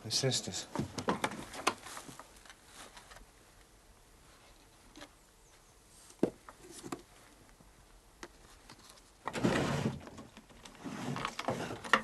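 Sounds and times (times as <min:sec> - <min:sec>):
rough handling noise: 0:00.7 - 0:03.3, 0:08.2 - 0:12.0.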